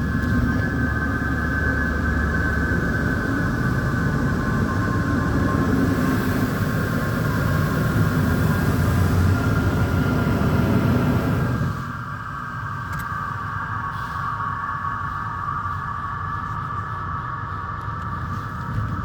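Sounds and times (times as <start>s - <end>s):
car wash machinery rumbling: 0.0s - 12.0s
high mechanical whine: 0.0s - 13.6s.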